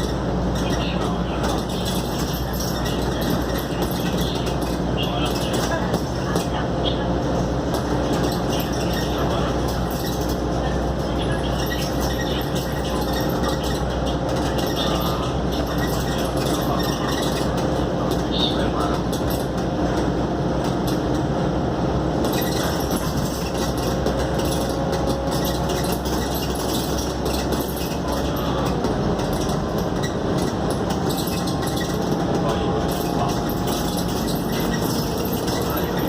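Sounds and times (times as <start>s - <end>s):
bus engine and road noise: 0.0s - 36.0s
bodywork rattling: 22.2s - 36.0s.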